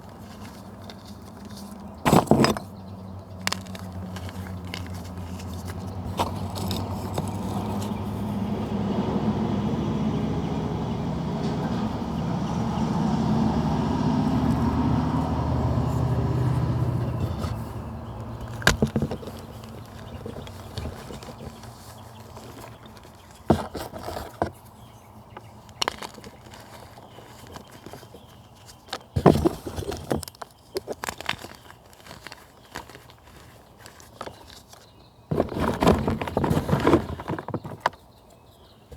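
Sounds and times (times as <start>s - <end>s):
dry material crunching: 0.0s - 8.4s, 13.3s - 38.0s
vehicle engine passing: 6.8s - 18.6s.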